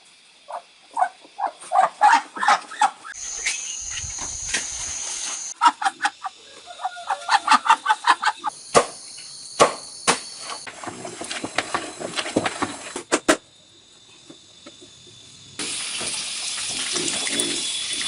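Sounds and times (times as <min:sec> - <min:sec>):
high-pitched whine: 0:03.2 - 0:05.6.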